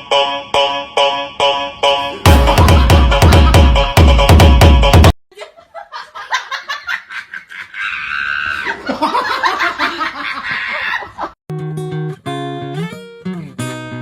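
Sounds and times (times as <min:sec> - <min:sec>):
person laughing: 0:02.2 - 0:04.0, 0:05.3 - 0:11.4.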